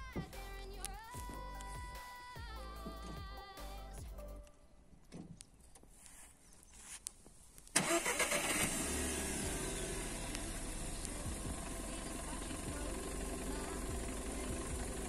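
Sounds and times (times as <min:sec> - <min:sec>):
car engine starting and idling: 0:07.7 - 0:15.0.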